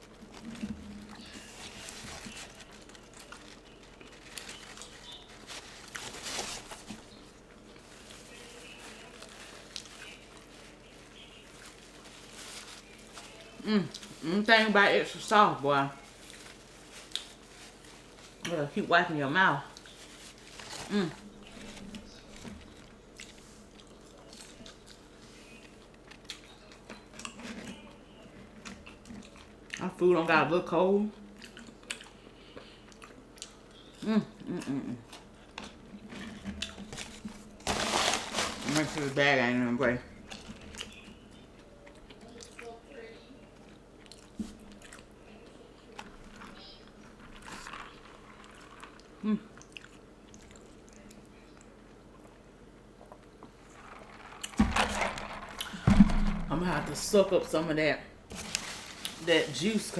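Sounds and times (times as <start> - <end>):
person chewing food: 0.0 - 14.3, 19.7 - 29.8, 31.2 - 37.7, 43.6 - 54.5
wrapper crinkling: 0.0 - 18.8, 19.5 - 26.5, 36.1 - 41.2, 46.1 - 49.1, 53.6 - 59.9.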